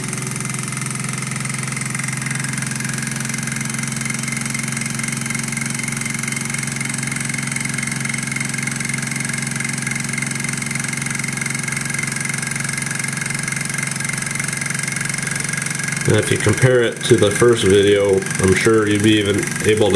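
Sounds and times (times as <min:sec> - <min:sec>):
small engine mechanical whir: 0:00.0 - 0:19.9.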